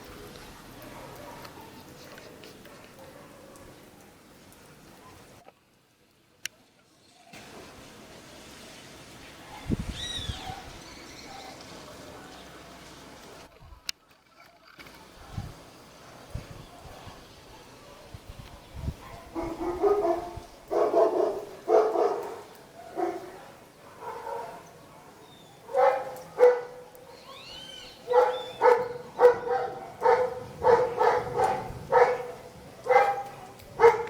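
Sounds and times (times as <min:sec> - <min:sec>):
dog barking: 0:00.6 - 0:04.2, 0:09.4 - 0:11.6, 0:15.0 - 0:34.0.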